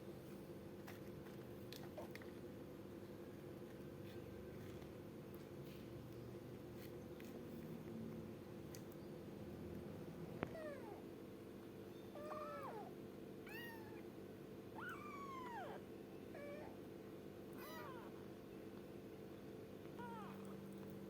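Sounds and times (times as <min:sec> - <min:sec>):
kitten meowing: 0:12.2 - 0:14.0, 0:14.8 - 0:16.8, 0:17.6 - 0:18.2, 0:20.0 - 0:20.5.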